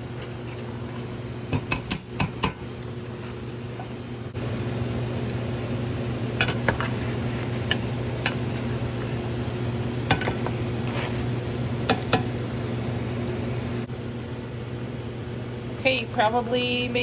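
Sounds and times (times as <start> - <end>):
chicken sizzling in a pot: 0.0 - 13.9
steady low hum: 0.0 - 17.0
utensil clinking against pot: 11.9 - 12.3.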